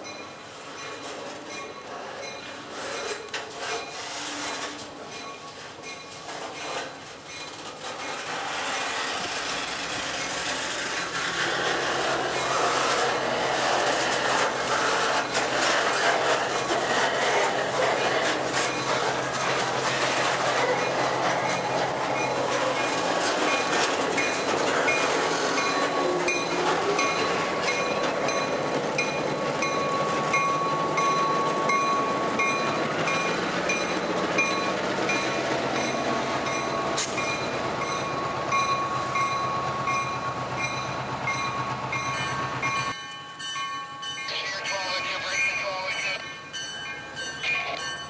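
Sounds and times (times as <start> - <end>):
wheels clicking over rail joints: 0.0 - 48.0
thin wheel squeal: 2.3 - 5.3, 6.6 - 23.0.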